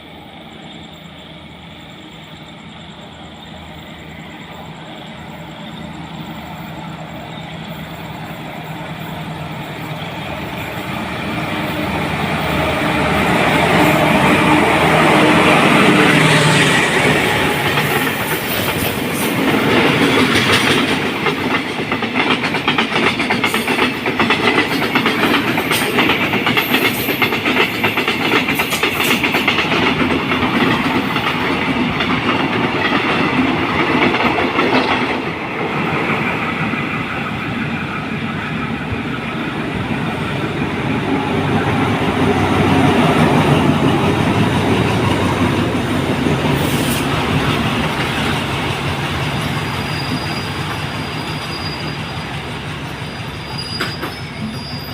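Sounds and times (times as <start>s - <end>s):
train wheels clacking over rail joints: 17.0s - 37.0s, 41.5s - 54.8s.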